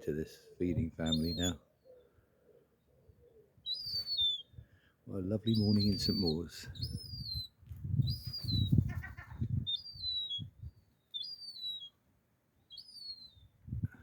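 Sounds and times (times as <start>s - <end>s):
gull chick whistled begging calls: 1.0s - 1.6s, 3.6s - 4.5s, 5.5s - 12.0s, 12.7s - 13.4s.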